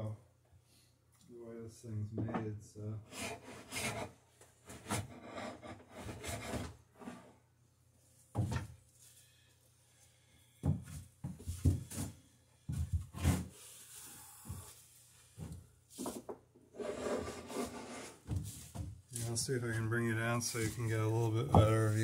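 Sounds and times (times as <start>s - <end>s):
blade scraping wood: 3.1s - 4.1s, 16.8s - 18.2s.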